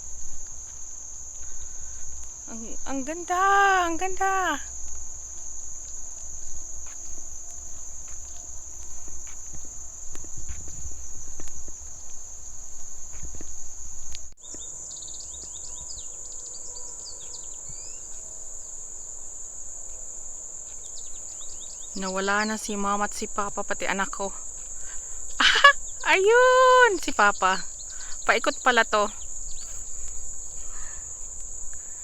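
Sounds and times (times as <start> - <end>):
insects droning: 0.0 - 32.0
birds chirping: 23.8 - 32.0.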